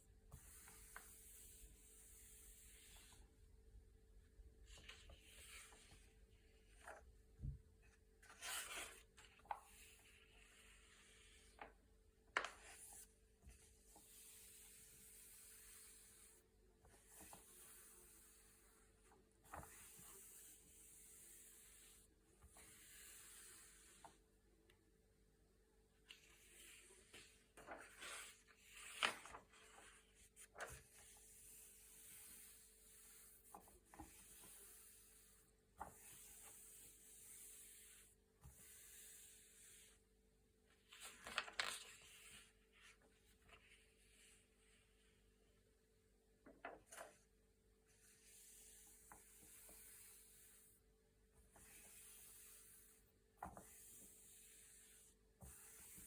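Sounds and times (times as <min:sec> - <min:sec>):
paper pages turning: 0:08.2 - 0:10.0, 0:26.1 - 0:30.8, 0:40.8 - 0:43.6.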